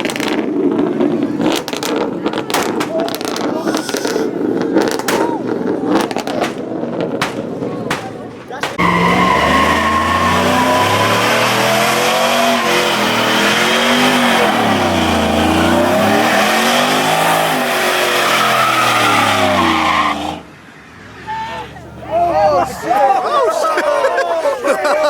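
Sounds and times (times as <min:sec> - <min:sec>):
car engine revving: 0:00.0 - 0:07.9, 0:08.7 - 0:20.5
tyres squealing: 0:08.6 - 0:21.8.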